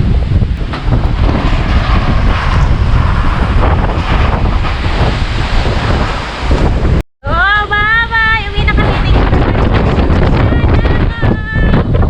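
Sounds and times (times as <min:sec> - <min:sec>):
strong wind buffeting microphone: 0:00.0 - 0:12.0.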